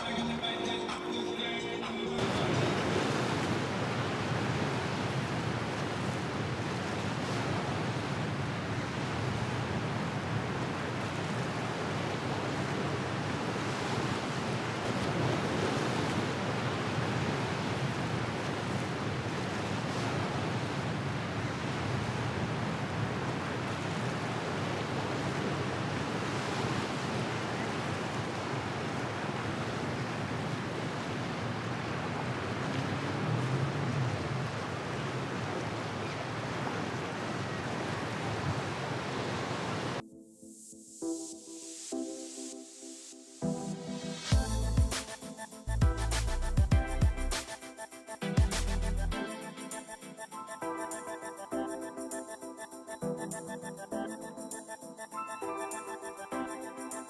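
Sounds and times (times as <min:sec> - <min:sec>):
waves rushing: 0:00.0 - 0:40.0, 0:41.6 - 0:46.7
wind: 0:00.0 - 0:40.0, 0:43.4 - 0:57.0.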